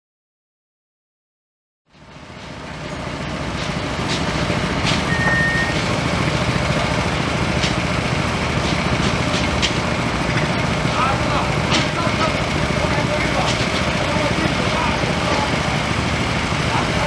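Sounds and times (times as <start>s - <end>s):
heavy machinery engine running: 1.9s - 17.0s
short high beep: 5.1s - 5.8s.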